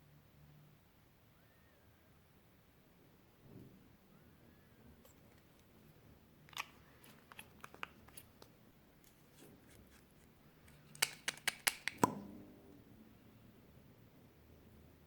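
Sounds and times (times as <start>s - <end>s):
eyeshadow clicking and crunching: 6.5s - 12.1s.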